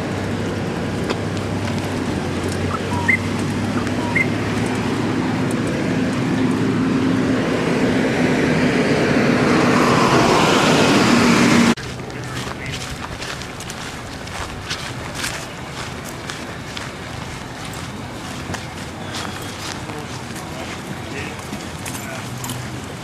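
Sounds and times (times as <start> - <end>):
vehicle passing: 0.0 - 23.0
background noise: 10.2 - 23.0.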